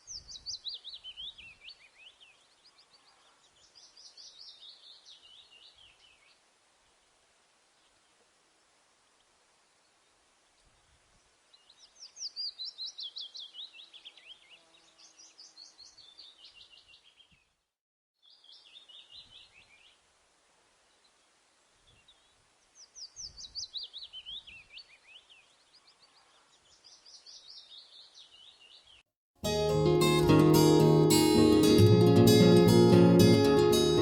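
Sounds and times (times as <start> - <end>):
songbird singing: 0.0 - 6.4, 11.5 - 17.6, 18.2 - 20.0, 21.9 - 29.0.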